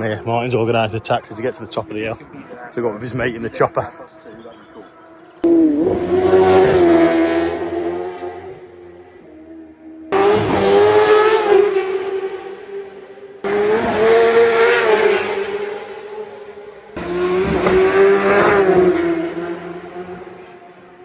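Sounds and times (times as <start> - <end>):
racing motorcycles passing: 0.0 - 21.0.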